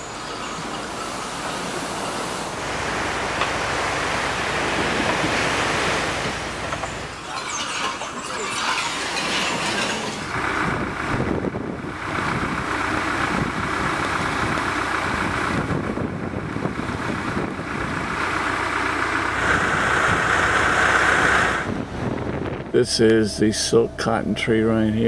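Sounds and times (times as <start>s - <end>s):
vehicle running: 0.0s - 25.0s
wind noise on microphone: 4.0s - 18.3s, 19.4s - 23.2s.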